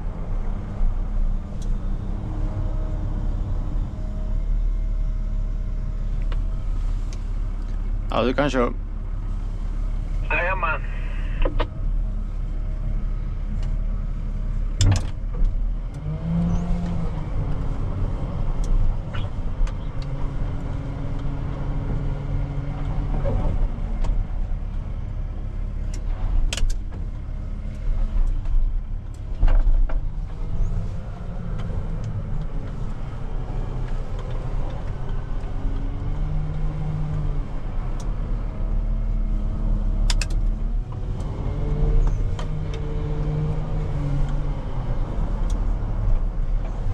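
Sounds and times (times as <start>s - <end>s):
diesel engine droning: 0.0s - 46.9s.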